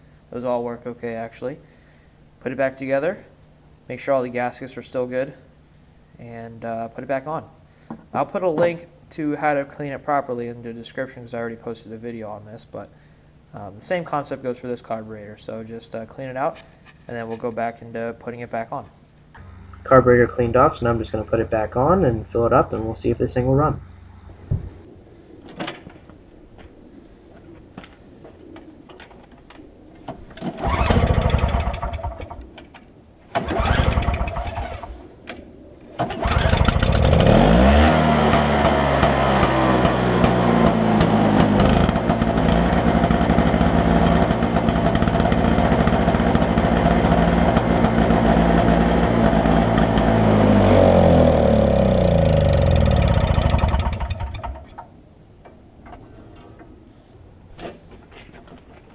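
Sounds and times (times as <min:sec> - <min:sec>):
snowblower engine starting: 0:30.4 - 0:32.4, 0:33.3 - 0:35.0, 0:36.0 - 0:54.8.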